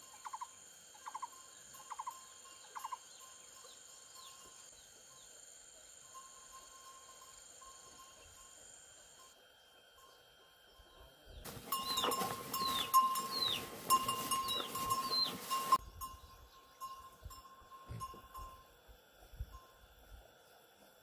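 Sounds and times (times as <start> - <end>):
insect-like trill: 0.0 - 20.2
high falling animal calls: 11.5 - 15.8.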